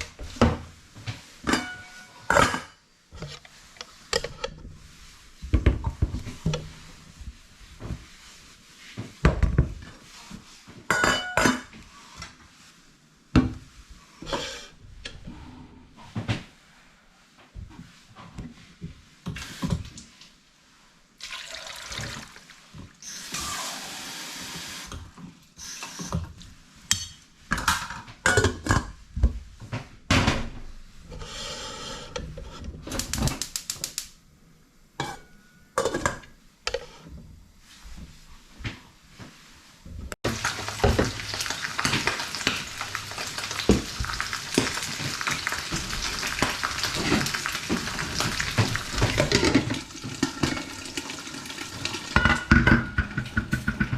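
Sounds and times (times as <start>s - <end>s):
dishes and utensils clattering: 1.4s - 3.4s, 10.9s - 11.8s, 26.9s - 29.0s, 35.0s - 37.0s, 40.3s - 51.1s, 51.8s - 53.9s
tap water running: 21.2s - 25.0s, 40.2s - 53.7s.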